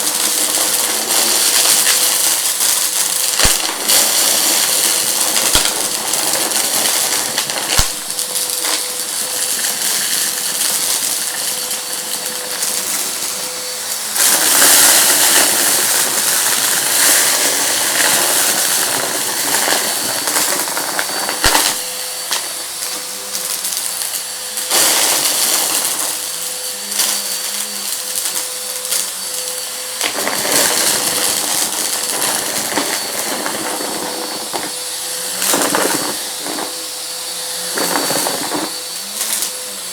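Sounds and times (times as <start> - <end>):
debris crackling through vacuum: 0.0 - 13.4, 29.9 - 37.1
vacuum cleaner motor hum: 0.0 - 39.9.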